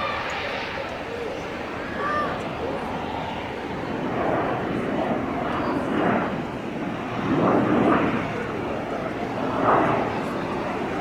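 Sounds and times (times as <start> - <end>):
jet engine rushing: 0.0 - 4.3.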